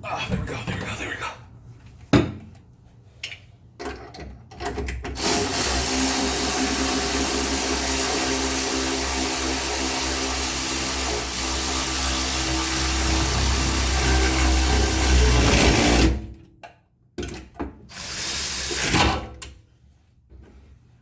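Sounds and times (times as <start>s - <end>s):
motor-driven machine running: 5.2s - 16.3s, 17.9s - 18.9s.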